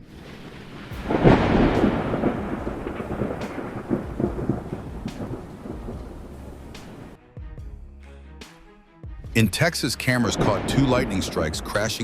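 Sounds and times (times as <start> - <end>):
rain hiss: 0.0 - 7.2
thunder rumbling: 0.0 - 7.2, 10.2 - 12.0.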